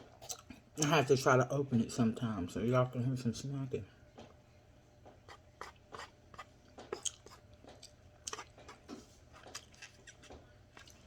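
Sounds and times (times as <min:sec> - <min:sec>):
person chewing food: 0:05.3 - 0:11.0.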